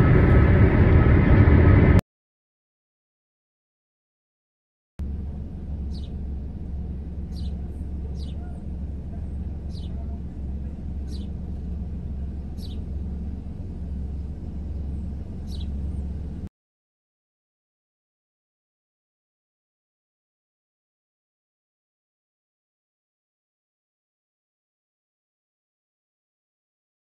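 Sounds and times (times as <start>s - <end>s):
low steady rumble: 0.0s - 2.0s, 5.0s - 16.5s.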